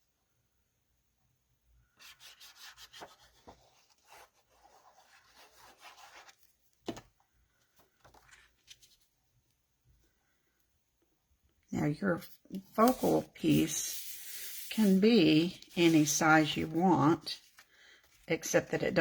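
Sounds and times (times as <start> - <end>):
paper scraping on desk: 12.6 - 16.9.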